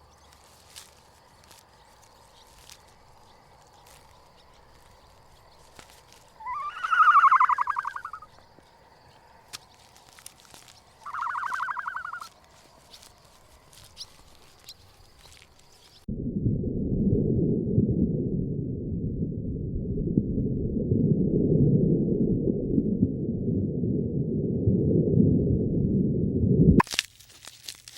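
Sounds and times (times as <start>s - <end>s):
small ticks: 0.0s - 16.0s
animal pulsing call: 6.4s - 8.3s, 11.0s - 12.3s
loud low rumbling: 16.1s - 26.8s.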